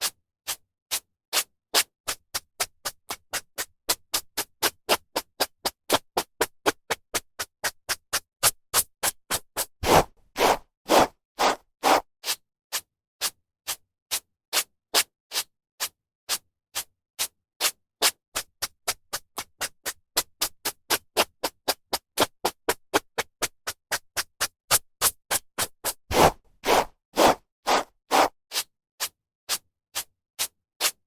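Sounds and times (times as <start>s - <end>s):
hairbrush strokes through hair: 9.8s - 12.0s, 26.1s - 28.3s.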